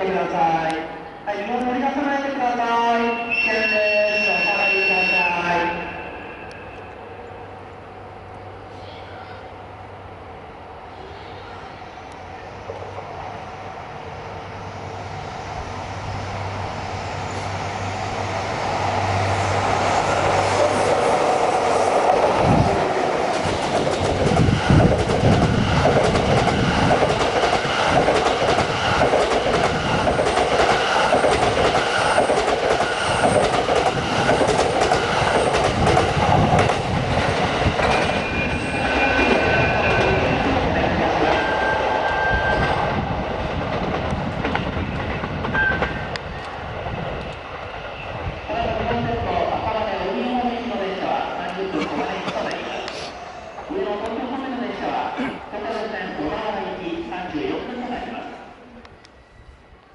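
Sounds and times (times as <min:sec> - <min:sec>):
high-pitched wheel squeals: 0:03.2 - 0:06.8, 0:38.0 - 0:40.2, 0:41.4 - 0:42.9
train wheels clattering: 0:23.2 - 0:40.2.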